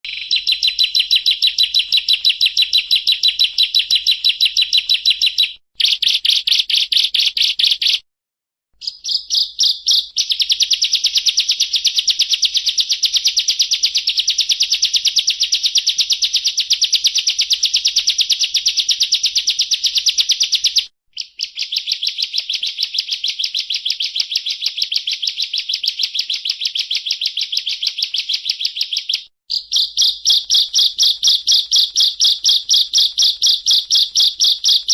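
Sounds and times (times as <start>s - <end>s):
bird trilling: 8.8s - 11.2s, 19.2s - 34.9s.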